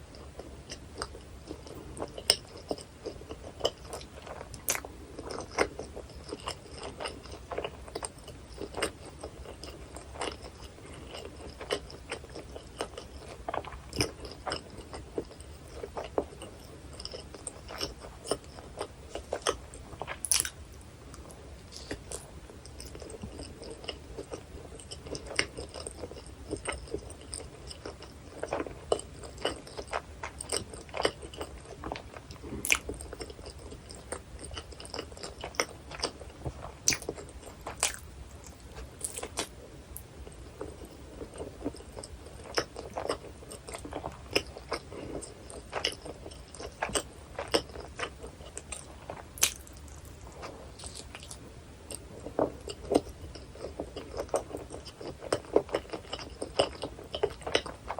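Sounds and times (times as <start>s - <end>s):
chewing and biting food: 0.0s - 57.9s.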